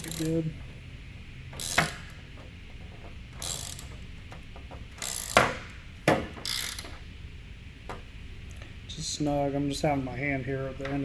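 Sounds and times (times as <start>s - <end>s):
hand ratchet clicking: 0.0s - 0.5s, 1.6s - 2.2s, 3.4s - 4.0s, 5.0s - 5.8s, 6.4s - 7.0s.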